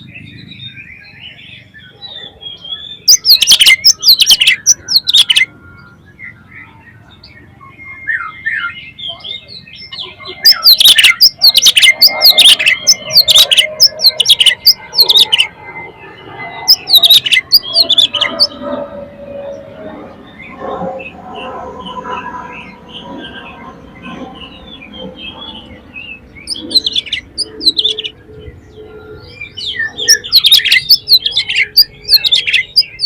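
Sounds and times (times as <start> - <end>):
faint bird chirps: 0.0 - 33.0
songbird singing sharp high notes: 3.0 - 5.5, 10.0 - 15.5.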